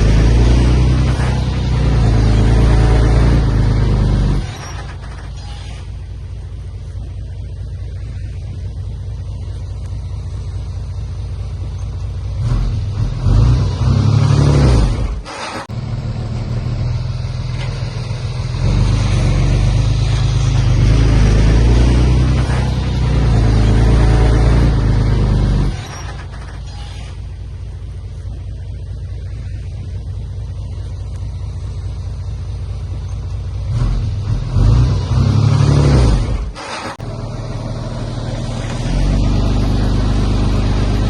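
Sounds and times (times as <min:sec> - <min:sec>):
heavy diesel engine revving: 0:00.0 - 0:06.0, 0:12.3 - 0:27.3, 0:33.6 - 0:41.0.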